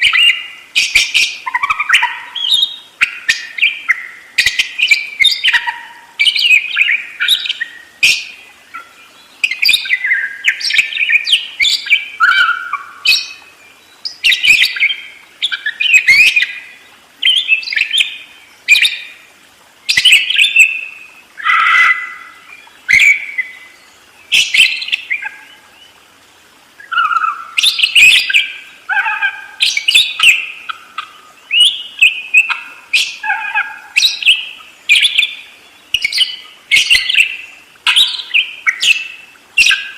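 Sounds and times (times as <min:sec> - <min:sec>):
budgerigar chattering and warbling: 0:26.9 - 0:31.1, 0:32.4 - 0:35.2.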